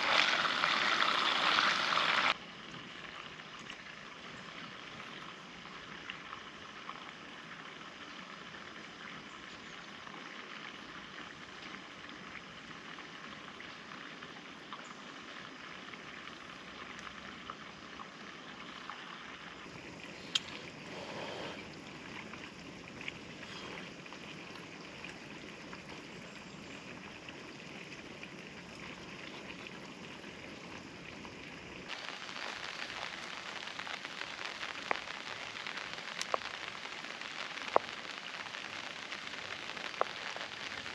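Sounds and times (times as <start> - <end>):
steady rain falling: 0.0 - 40.9
drops ticking on a surface: 32.8 - 38.2, 38.8 - 40.6.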